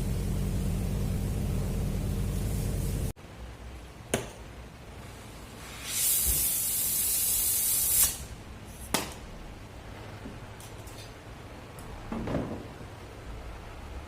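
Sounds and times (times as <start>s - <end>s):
spray gun hissing: 0.0s - 3.1s, 5.6s - 8.3s.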